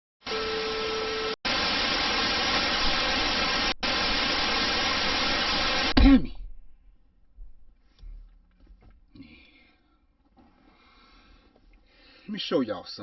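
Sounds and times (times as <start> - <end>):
static hiss: 0.2 - 6.1.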